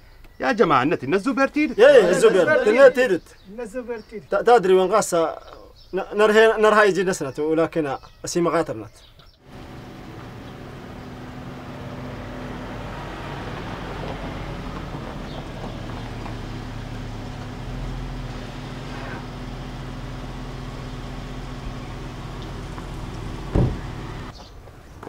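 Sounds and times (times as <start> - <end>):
car engine humming: 9.4 - 24.8
tyres rolling over gravel: 9.5 - 24.8
loud thump: 23.4 - 24.0.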